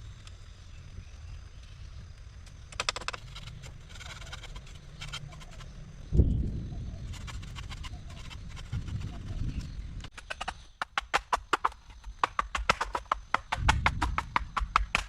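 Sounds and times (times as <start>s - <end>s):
sharp irregular knocks: 2.7s - 4.5s, 10.1s - 15.0s.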